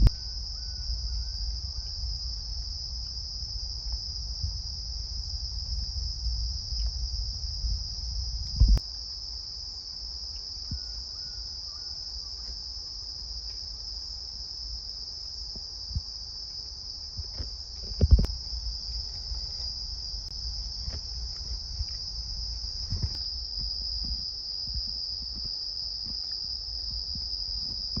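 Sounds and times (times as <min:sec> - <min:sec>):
low rumble: 0:00.0 - 0:08.8, 0:17.2 - 0:24.3
crickets trilling: 0:00.0 - 0:28.0.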